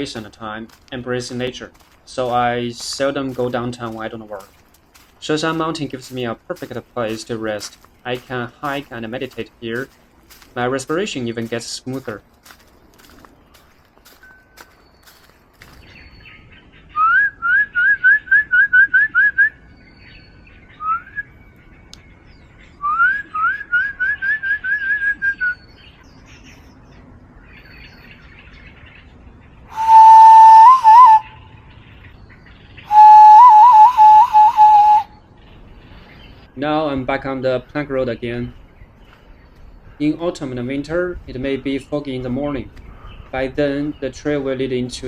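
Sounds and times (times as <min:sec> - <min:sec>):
loud bird whistles and warbles: 0:12.4 - 0:21.7, 0:22.6 - 0:26.8
bird rising whistled notes: 0:20.7 - 0:21.3, 0:29.7 - 0:31.5, 0:32.8 - 0:35.2.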